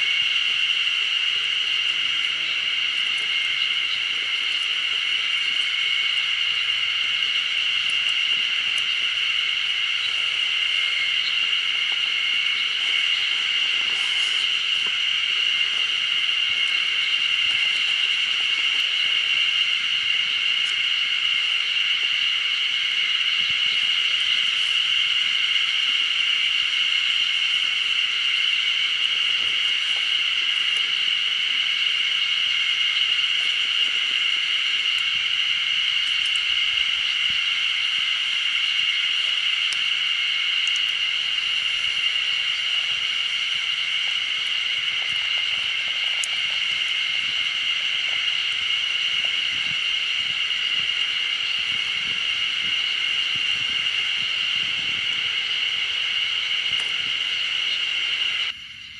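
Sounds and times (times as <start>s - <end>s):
insects buzzing: 0.0s - 58.9s
faint ticks: 38.8s - 40.0s, 40.6s - 48.4s.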